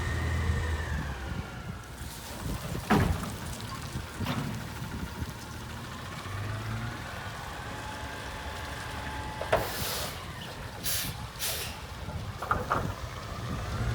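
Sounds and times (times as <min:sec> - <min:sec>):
air hiss bursts: 0:10.8 - 0:11.8.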